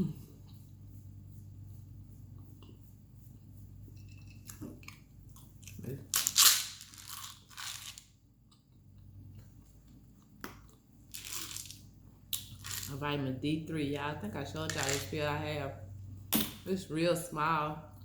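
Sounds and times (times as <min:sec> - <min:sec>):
crunching and chewing food: 0:03.8 - 0:13.0.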